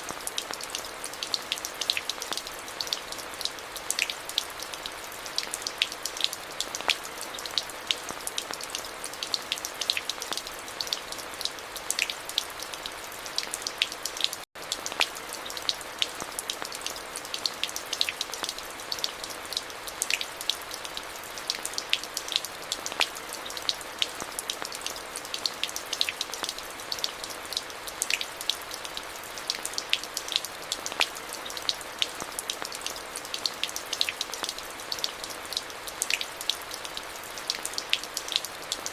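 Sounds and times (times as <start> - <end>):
rain falling: 0.0 - 38.9
raindrop ticks: 13.4 - 20.8, 29.5 - 38.9.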